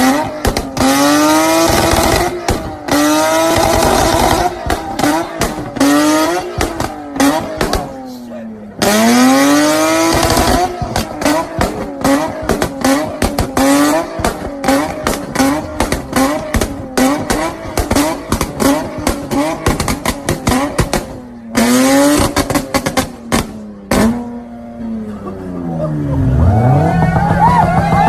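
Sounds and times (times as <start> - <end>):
exhaust crackles and pops: 0.0 - 8.0, 10.0 - 21.3
engine revving: 0.0 - 28.0.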